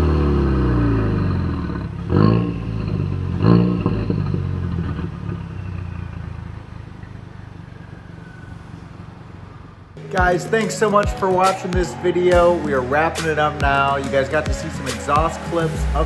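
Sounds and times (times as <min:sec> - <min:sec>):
car engine running low: 0:00.0 - 0:10.3
car engine revving: 0:00.0 - 0:16.0.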